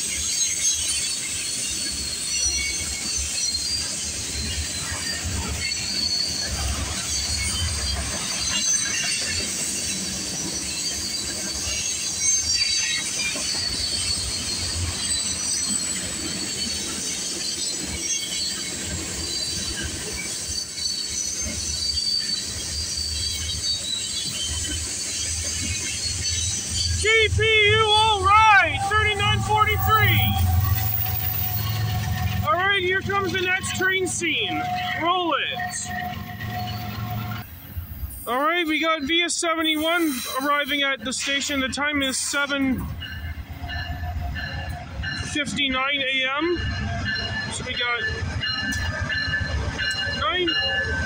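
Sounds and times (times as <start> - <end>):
high-pitched wheel squeal: 0.0 - 38.2
train wheels rumbling: 0.0 - 51.0.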